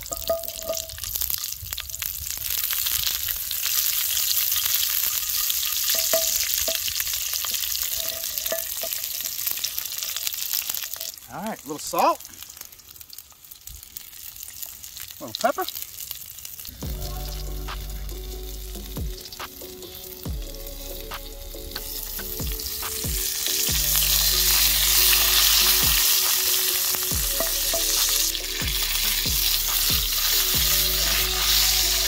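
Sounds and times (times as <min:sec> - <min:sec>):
vegetables sizzling in oil: 0:00.0 - 0:32.0.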